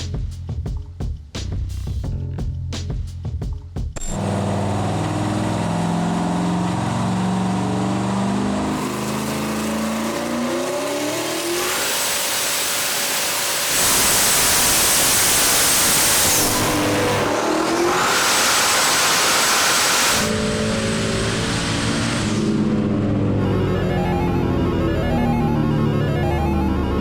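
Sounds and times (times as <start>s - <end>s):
car engine revving on dyno: 4.0s - 27.0s
high thin whine: 11.4s - 24.9s.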